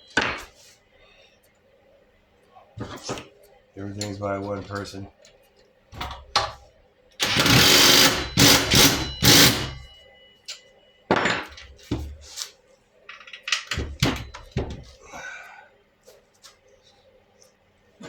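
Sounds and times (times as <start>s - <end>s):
metal parts knocking and clinking: 7.2s - 9.9s, 13.1s - 14.9s
power tool driving bolts: 7.2s - 9.9s.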